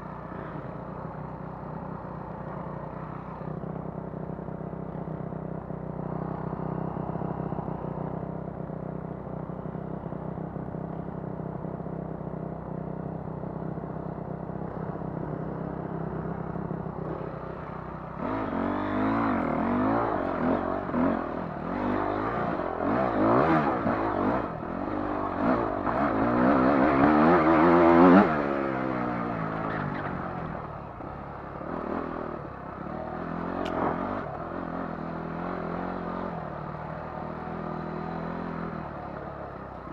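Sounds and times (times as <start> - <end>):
dirt bike engine revving: 18.2 - 30.2.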